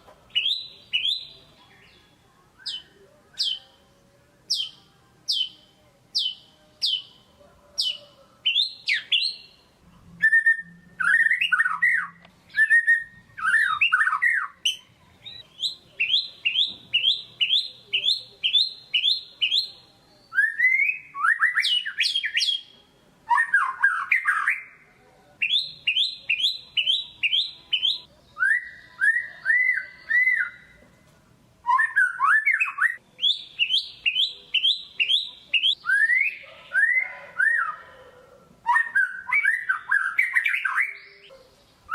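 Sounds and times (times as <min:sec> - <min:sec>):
bird singing varied whistles: 0:00.3 - 0:01.4, 0:02.6 - 0:03.7, 0:07.8 - 0:09.6, 0:10.2 - 0:22.7, 0:25.4 - 0:30.7, 0:31.6 - 0:37.8, 0:38.6 - 0:41.2.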